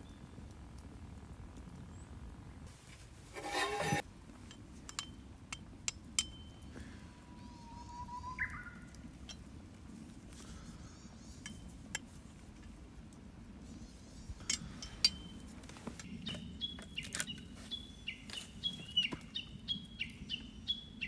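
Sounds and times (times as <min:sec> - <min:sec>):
brief rustle or scrape: 0:02.9 - 0:04.0.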